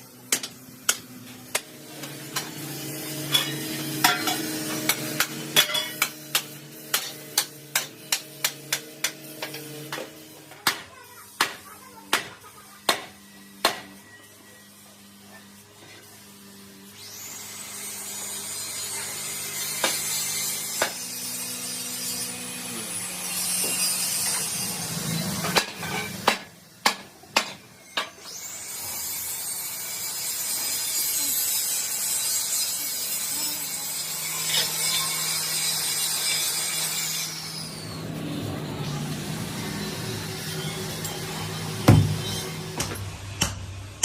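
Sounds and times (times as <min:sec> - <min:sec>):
power tool winding up and down: 0:01.1 - 0:10.5, 0:12.6 - 0:26.8, 0:27.7 - 0:43.1
sharp knocks: 0:41.8 - 0:42.2.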